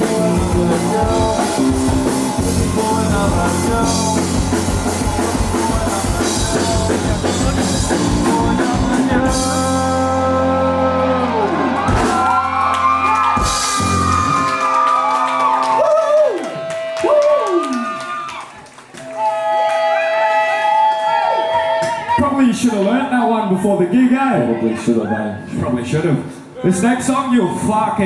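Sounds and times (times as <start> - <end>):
live rock band playing: 0.0 - 16.0
audience whooping and shouting: 8.7 - 22.9.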